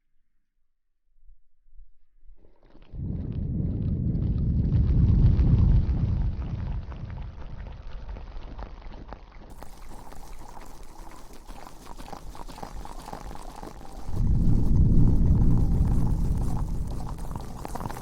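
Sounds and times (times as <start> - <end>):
low rumble: 2.9 - 8.8, 14.0 - 18.0
shampoo lather squishing in hair: 8.7 - 18.0.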